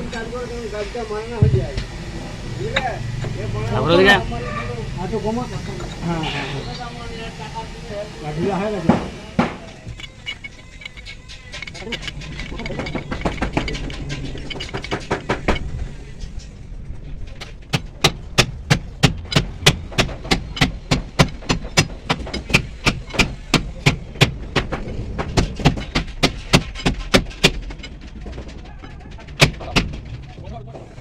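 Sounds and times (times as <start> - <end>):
hammer striking metal: 17.7 - 27.6.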